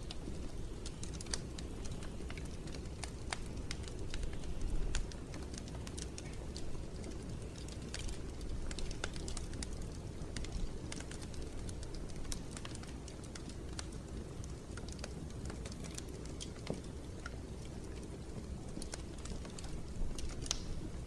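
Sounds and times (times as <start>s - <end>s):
low rumble of flames: 0.0s - 21.0s
wood fire crackling: 0.0s - 21.0s.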